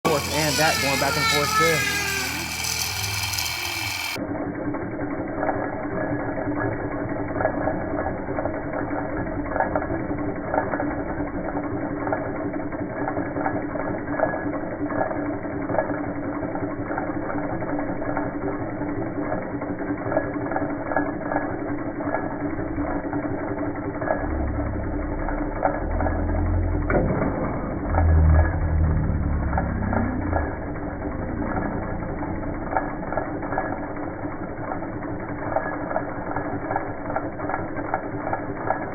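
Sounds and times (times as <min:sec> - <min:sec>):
engine steady hum: 0:00.0 - 0:04.2, 0:21.5 - 0:38.8
fast mechanical clatter: 0:00.0 - 0:38.9.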